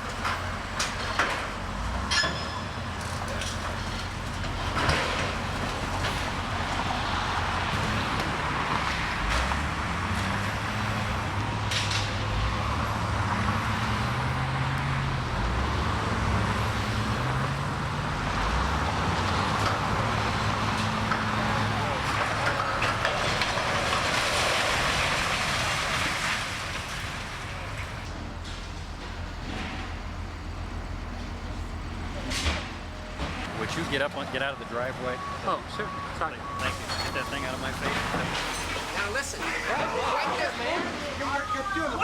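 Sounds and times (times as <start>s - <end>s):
diesel machinery engine working: 0.0s - 42.0s.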